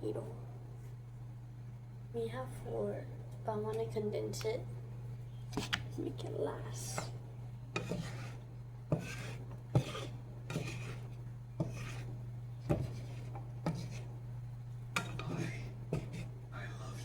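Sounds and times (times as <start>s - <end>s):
steady low hum: 0.0s - 17.0s
knife chopping on cutting board: 7.8s - 11.0s, 11.6s - 14.1s, 15.0s - 16.3s
knife scraping board: 7.8s - 14.1s, 15.0s - 16.3s.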